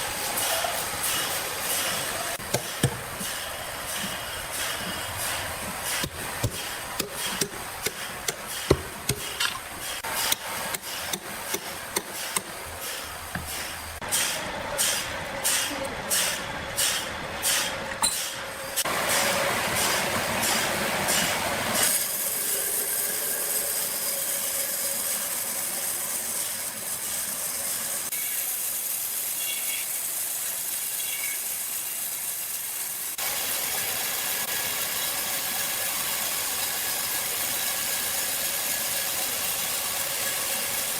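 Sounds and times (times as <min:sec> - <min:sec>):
high-pitched machine hiss: 0:21.8 - 0:40.9.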